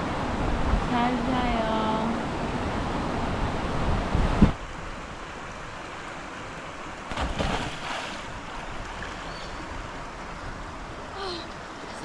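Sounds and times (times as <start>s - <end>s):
wind on microphone: 0.0s - 4.9s
mountain stream running: 0.0s - 12.0s.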